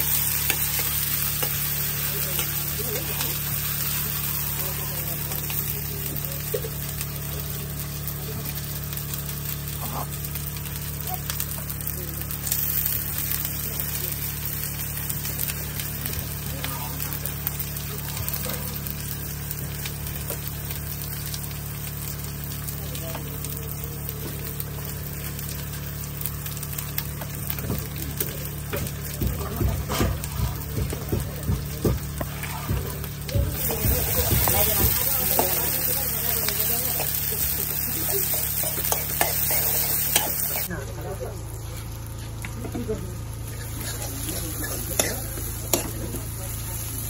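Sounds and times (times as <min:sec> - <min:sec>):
vegetables sizzling in hot oil: 0:00.0 - 0:47.0.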